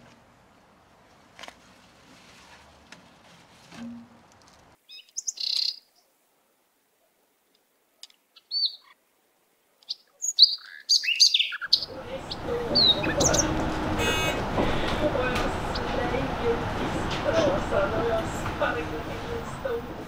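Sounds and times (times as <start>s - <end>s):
small birds chirping: 4.8s - 6.1s, 8.0s - 9.0s, 9.8s - 14.5s, 15.1s - 16.6s.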